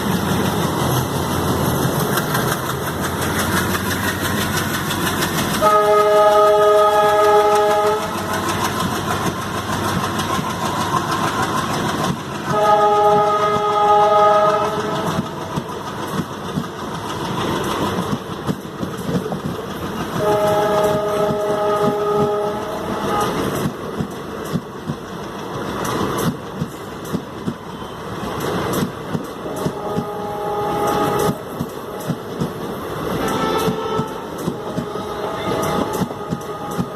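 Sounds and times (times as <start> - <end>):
rumble of moving train coaches: 0.0 - 36.9
train wheels clattering over rail joints: 0.0 - 36.9
train horn blasts: 5.6 - 8.3, 12.5 - 15.4, 20.2 - 23.6, 29.4 - 32.0, 33.1 - 36.9.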